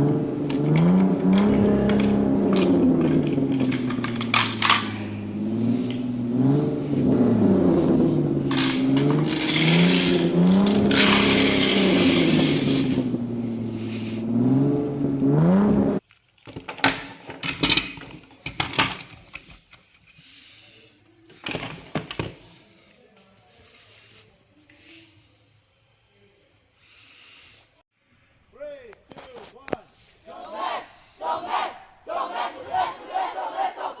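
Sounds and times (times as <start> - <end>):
clicks and knocks: 0.4 - 5.1
toy car motor whirring: 8.5 - 13.0.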